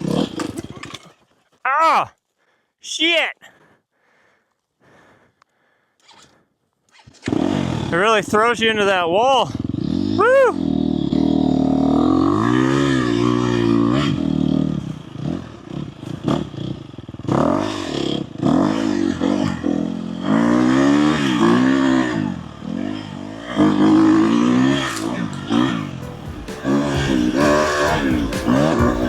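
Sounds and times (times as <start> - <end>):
dirt bike engine revving: 0.0 - 1.0, 7.0 - 8.8, 9.5 - 29.0.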